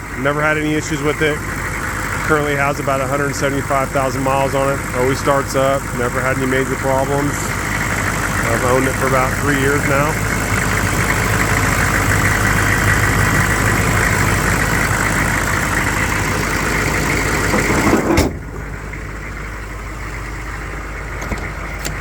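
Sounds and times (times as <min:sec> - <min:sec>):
diesel engine idling: 0:00.0 - 0:22.0
thump: 0:17.5 - 0:18.6.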